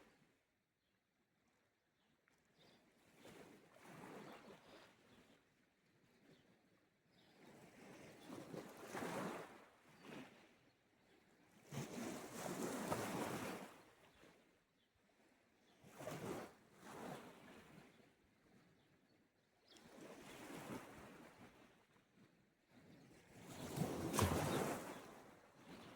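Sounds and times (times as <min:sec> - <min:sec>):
small waves washing on shore: 0:23.5 - 0:25.9.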